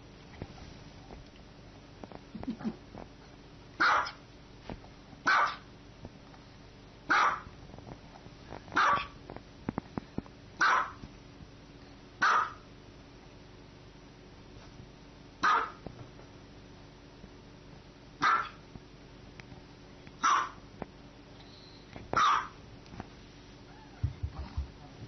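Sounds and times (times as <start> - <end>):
small dog barking: 3.8 - 4.2, 5.2 - 5.7, 7.1 - 7.5, 8.8 - 9.2, 10.6 - 11.0, 12.2 - 12.6, 15.4 - 15.8, 18.2 - 18.6, 20.2 - 20.6, 22.2 - 22.6.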